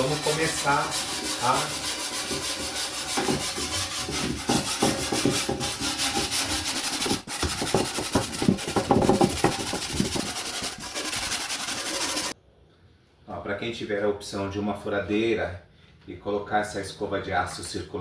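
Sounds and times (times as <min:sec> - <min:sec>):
wire brush scrubbing metal: 0:00.0 - 0:12.4.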